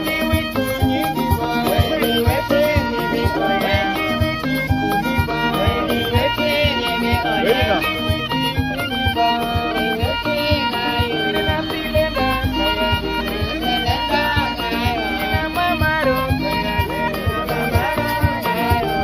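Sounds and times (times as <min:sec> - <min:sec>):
fiddle-like melody: 0:00.0 - 0:19.0
steady beat: 0:00.0 - 0:19.0.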